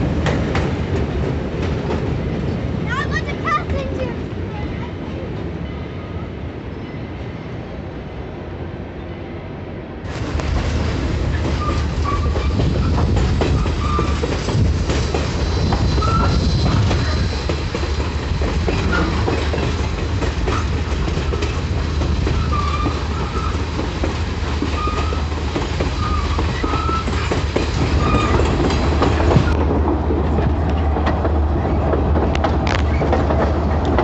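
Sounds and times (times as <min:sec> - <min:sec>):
train rumbling: 0:00.0 - 0:34.0
wheels clicking over rail joints: 0:10.2 - 0:34.0
wheel squeals: 0:11.3 - 0:14.4, 0:15.1 - 0:17.6, 0:22.3 - 0:23.7, 0:24.7 - 0:25.3, 0:25.9 - 0:29.6.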